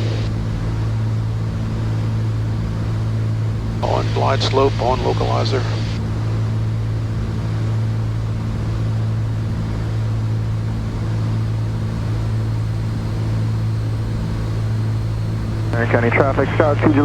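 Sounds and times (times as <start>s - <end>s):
propeller aircraft engines droning: 0.0s - 17.0s.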